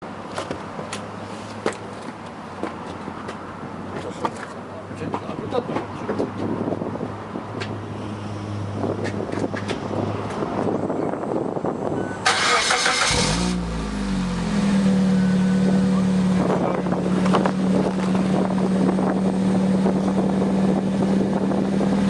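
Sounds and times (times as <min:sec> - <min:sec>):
car engine idling: 0:12.3 - 0:21.8.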